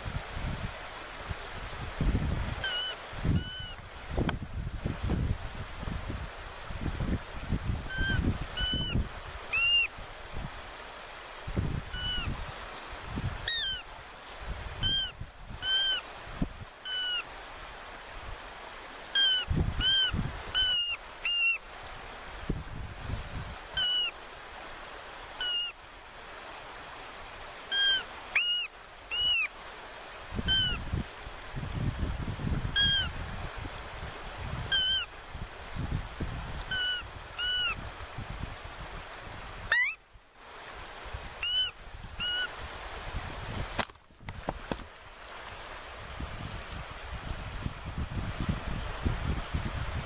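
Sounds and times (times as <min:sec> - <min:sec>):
bird calling sharply: 0:02.6 - 0:03.8, 0:07.9 - 0:09.9, 0:11.9 - 0:12.3, 0:13.4 - 0:13.9, 0:14.8 - 0:16.0, 0:16.8 - 0:17.2, 0:19.1 - 0:21.6, 0:23.8 - 0:24.2, 0:25.4 - 0:25.8, 0:27.7 - 0:29.5, 0:30.5 - 0:30.8, 0:32.7 - 0:33.1, 0:34.7 - 0:35.1, 0:36.7 - 0:37.8, 0:39.7 - 0:40.0, 0:41.4 - 0:42.5.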